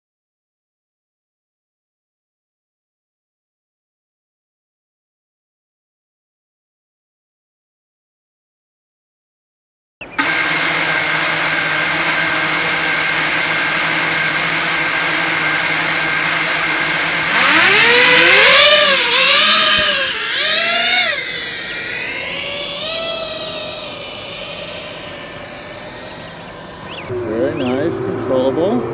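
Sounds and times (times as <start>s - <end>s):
quadcopter motors whining: 10.1s - 28.8s.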